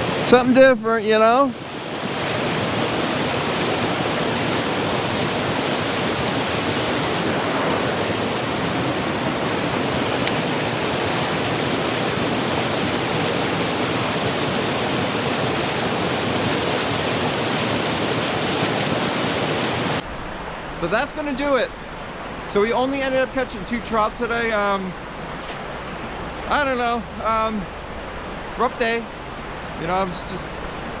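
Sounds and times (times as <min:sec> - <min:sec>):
creek water rushing: 0:00.0 - 0:31.0.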